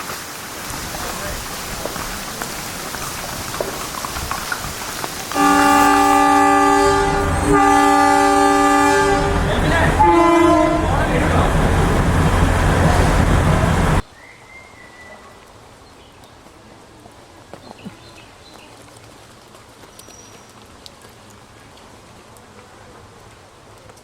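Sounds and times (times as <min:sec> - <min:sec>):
train running loudly: 0:04.6 - 0:14.0
faint ticks and drips: 0:17.5 - 0:24.0.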